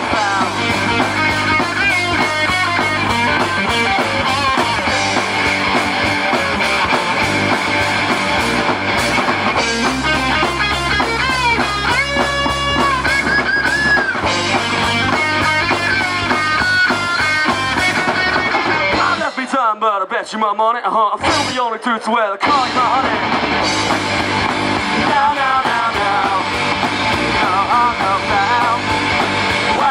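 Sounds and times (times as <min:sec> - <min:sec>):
live rock band playing: 0:00.0 - 0:19.6, 0:21.2 - 0:29.9
electric guitar with bent notes: 0:00.0 - 0:19.7, 0:22.4 - 0:29.9.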